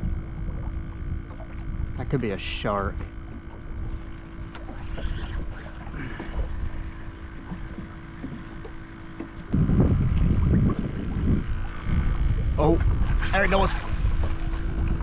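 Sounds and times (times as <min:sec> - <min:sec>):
water around hull: 0:00.0 - 0:15.0
small knocks on hull: 0:07.4 - 0:09.5
wind buffeting microphone: 0:09.4 - 0:15.0.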